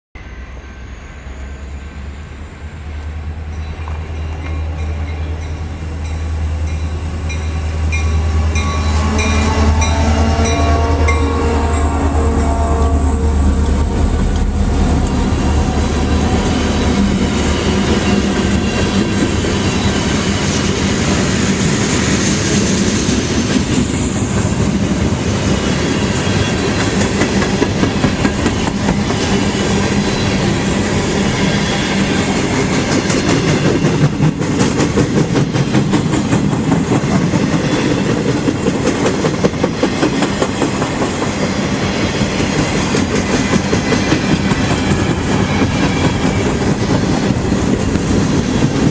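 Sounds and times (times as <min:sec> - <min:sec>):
train wheels clicking over rail joints: 0:32.1 - 0:48.9.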